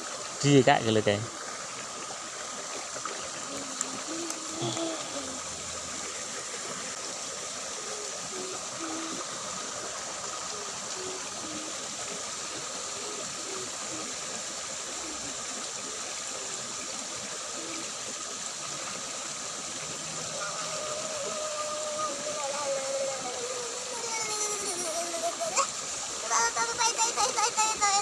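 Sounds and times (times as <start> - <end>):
water trickling in a ditch: 0.0 - 28.0.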